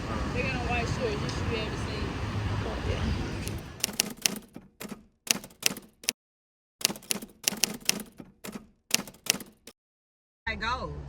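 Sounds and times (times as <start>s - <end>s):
typewriter key clacks: 3.5s - 6.2s, 6.8s - 9.8s.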